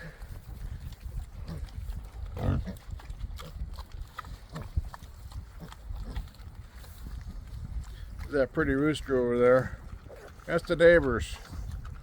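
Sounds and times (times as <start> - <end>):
animals feeding on grain: 0.0 - 12.0
wind rumbling on microphone: 0.0 - 12.0.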